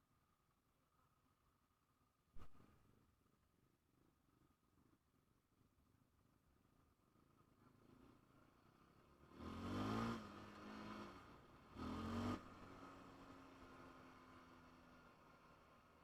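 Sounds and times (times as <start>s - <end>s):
atv engine revving and idling: 9.1s - 15.7s.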